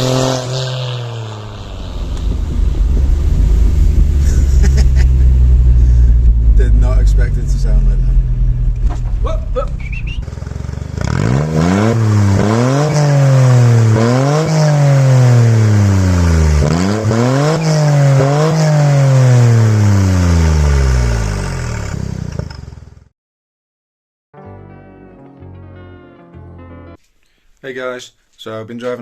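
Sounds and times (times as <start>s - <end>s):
loud car engine revving: 0.0s - 22.5s.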